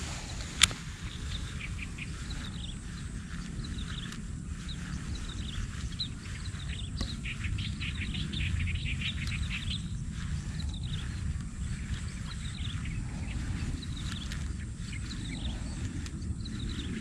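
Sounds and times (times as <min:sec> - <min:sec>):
low rumble: 0:00.0 - 0:17.0
small birds chirping: 0:00.0 - 0:17.0.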